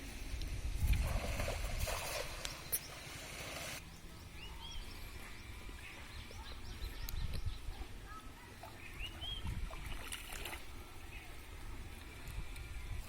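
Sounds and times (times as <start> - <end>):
birds chirping: 2.0 - 10.0.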